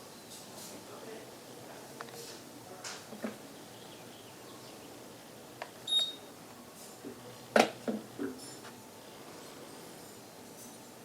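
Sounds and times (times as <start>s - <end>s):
short high beep: 5.9s - 6.3s.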